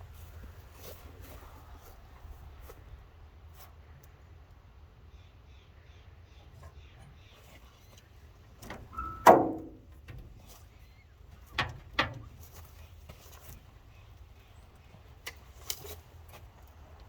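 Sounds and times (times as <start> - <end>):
short squeak: 8.9 - 9.5
loud ringing thump: 9.0 - 9.8
sharp knocks: 9.0 - 9.8.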